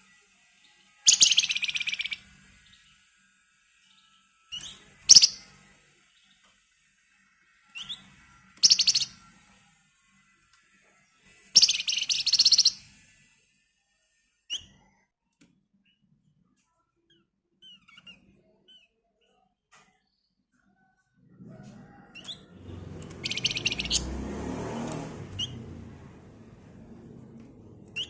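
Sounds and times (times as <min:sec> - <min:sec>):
bird rattling trills: 0:01.1 - 0:02.2, 0:05.1 - 0:05.4, 0:08.6 - 0:09.2, 0:11.6 - 0:12.8, 0:23.0 - 0:24.1
bird chirp: 0:01.1 - 0:03.0, 0:03.8 - 0:06.5, 0:07.7 - 0:09.3, 0:11.5 - 0:13.0, 0:22.2 - 0:24.2, 0:24.8 - 0:25.8.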